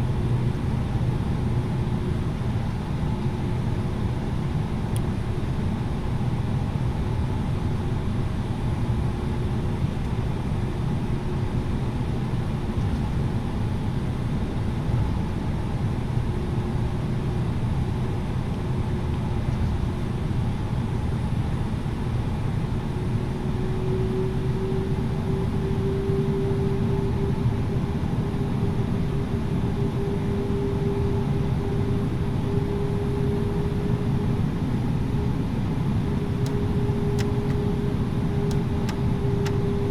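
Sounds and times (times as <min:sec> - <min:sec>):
air-conditioning: 0:00.0 - 0:39.9
aircraft engine rumble: 0:00.0 - 0:39.9
steady hum: 0:36.0 - 0:39.9.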